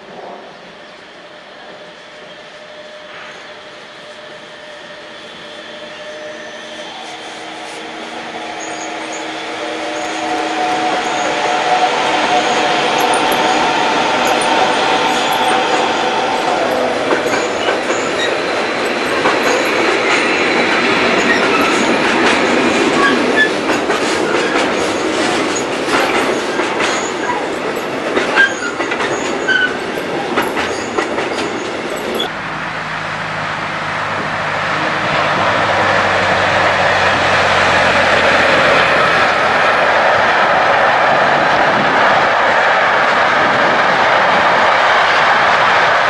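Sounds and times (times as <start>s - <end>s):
electric locomotive hum: 0.0s - 46.0s
freight train rumbling past: 0.0s - 46.0s
wheel squeals: 2.2s - 11.6s, 12.2s - 32.4s
wheels clicking over rail joints: 12.6s - 33.4s.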